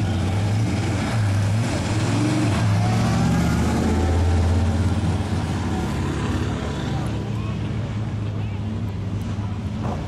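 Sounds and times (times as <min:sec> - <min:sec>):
car engine rumbling past: 0:00.0 - 0:07.2.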